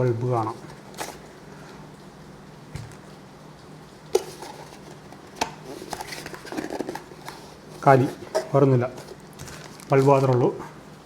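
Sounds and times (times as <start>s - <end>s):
packaging rustling: 0.4s - 1.4s, 4.2s - 10.5s.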